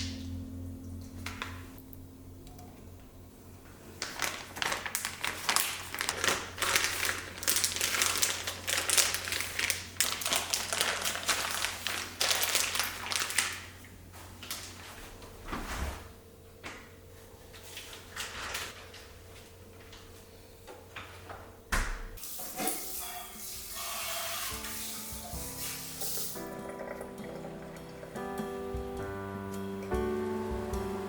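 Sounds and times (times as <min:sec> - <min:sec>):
rustling and crinkling: 0:03.6 - 0:16.2.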